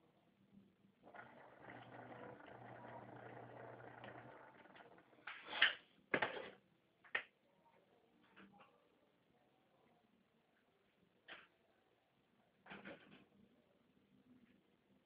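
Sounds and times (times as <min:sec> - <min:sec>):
fan motor humming: 0:01.0 - 0:05.3.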